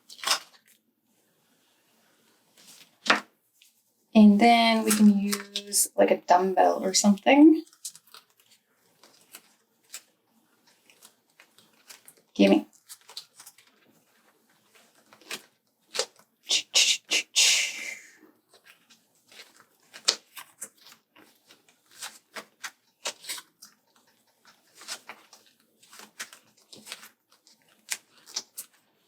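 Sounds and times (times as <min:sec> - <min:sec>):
paper rustling: 0:02.6 - 0:03.8, 0:04.6 - 0:05.8, 0:07.6 - 0:16.2, 0:18.5 - 0:29.0.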